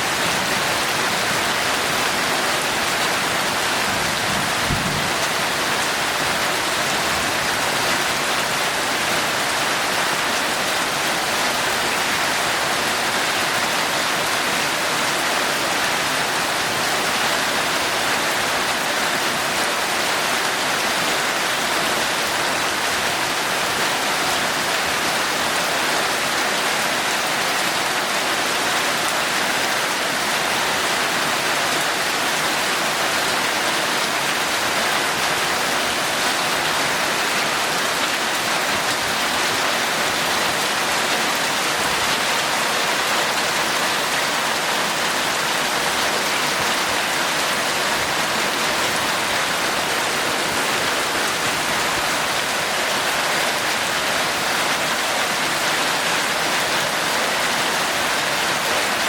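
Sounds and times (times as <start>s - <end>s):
heavy rain hissing: 30.4s - 59.0s.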